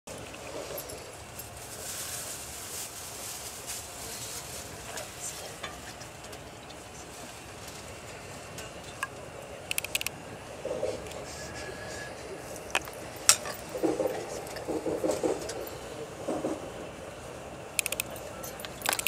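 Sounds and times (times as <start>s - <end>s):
train rolling and rushing: 0.1s - 19.0s
sharp clicks: 9.7s - 10.1s, 17.8s - 18.1s.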